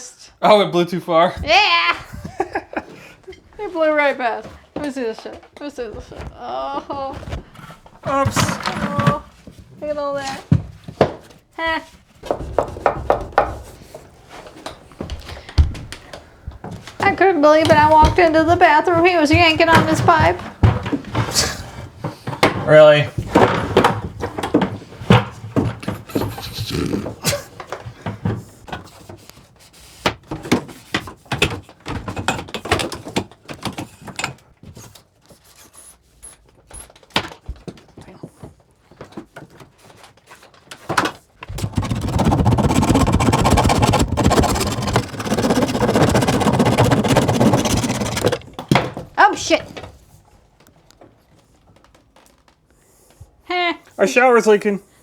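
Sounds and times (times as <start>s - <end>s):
pipes knocking and scraping: 12.2s - 27.4s, 41.5s - 49.0s.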